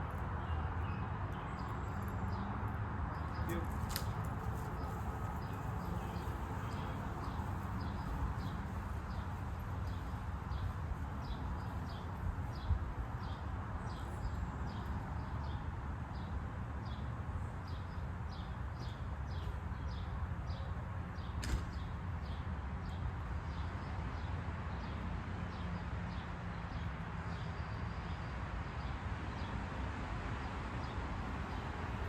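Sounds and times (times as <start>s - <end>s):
brief knock: 21.4s - 21.8s.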